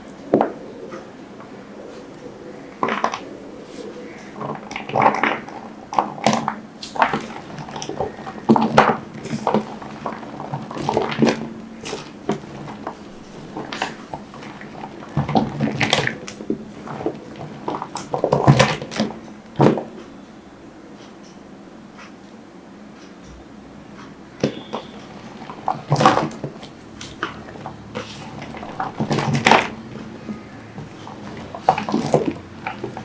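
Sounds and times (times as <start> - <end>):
soap being cut: 2.9 - 19.9, 24.4 - 33.0.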